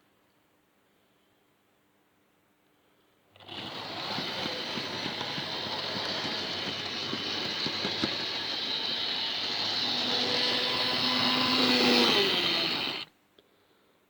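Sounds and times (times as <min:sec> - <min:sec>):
model train rattling on track: 0:03.4 - 0:13.1.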